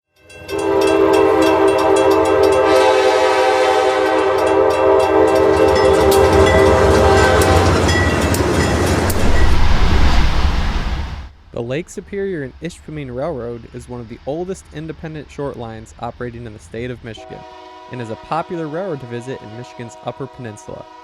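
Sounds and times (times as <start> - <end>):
rumble of passing train: 0.2 - 21.0
locomotive air horn: 0.4 - 8.1, 17.2 - 21.0
wheels clicking on rail: 4.1 - 9.2.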